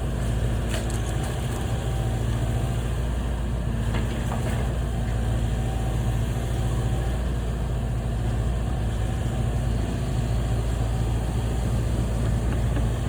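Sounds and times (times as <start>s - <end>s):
heavy equipment engine humming: 0.0s - 13.0s.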